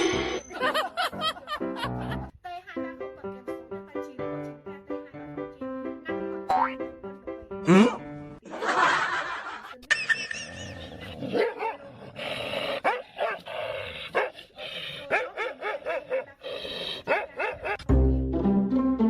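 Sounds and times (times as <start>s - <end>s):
dog barking: 11.3s - 11.9s, 12.8s - 13.5s, 14.1s - 14.4s, 15.0s - 16.4s, 17.0s - 17.9s.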